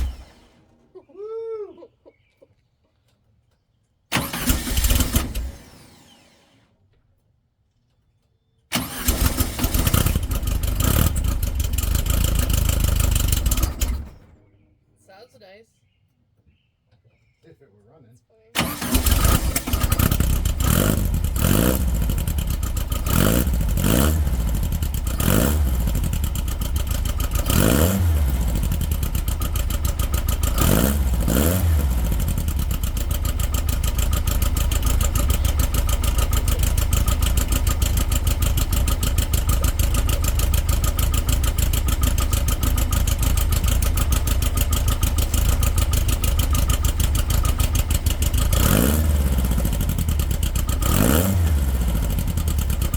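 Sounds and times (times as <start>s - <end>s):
car engine revving and running: 0.0s - 0.8s, 4.1s - 6.7s, 8.7s - 14.4s, 18.6s - 52.9s.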